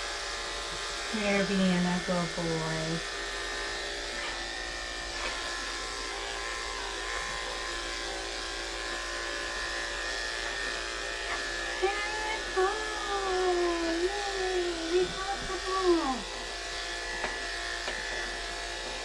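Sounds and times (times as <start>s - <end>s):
electric clippers buzzing: 0.0s - 19.0s
person speaking: 1.1s - 3.0s, 11.8s - 16.2s.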